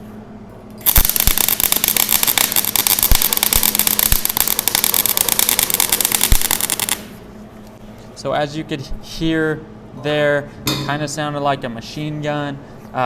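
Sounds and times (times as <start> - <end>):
welder arc crackling: 0.8 - 7.2.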